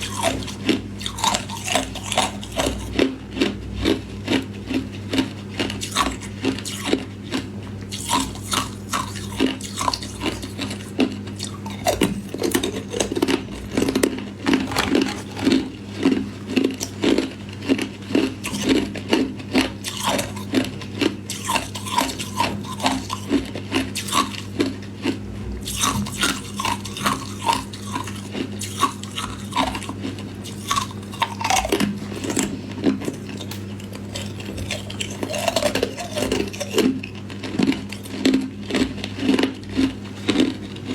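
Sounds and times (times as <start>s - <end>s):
low electrical hum: 0.0s - 40.9s
ice cubes crunching: 11.4s - 17.8s, 19.8s - 20.5s, 25.7s - 38.4s.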